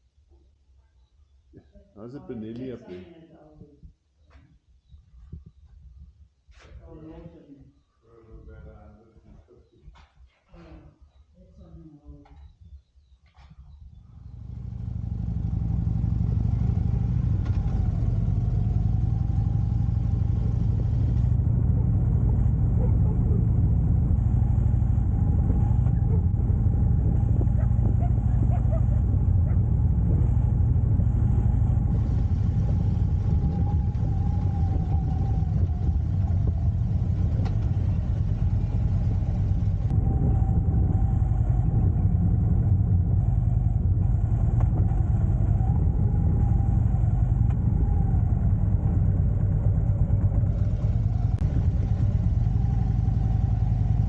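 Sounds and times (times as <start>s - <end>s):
motorcycle engine rumbling: 11.6s - 54.0s.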